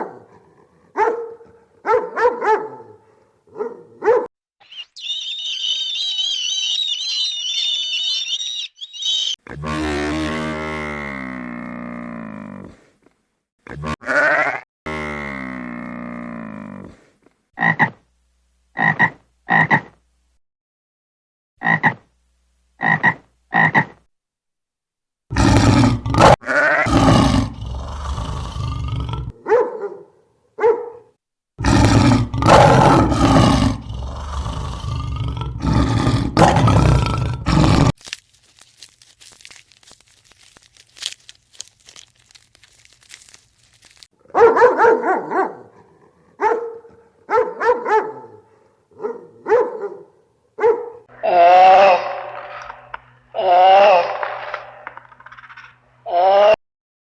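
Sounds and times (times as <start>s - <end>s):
frogs croaking: 4.6s - 9.4s.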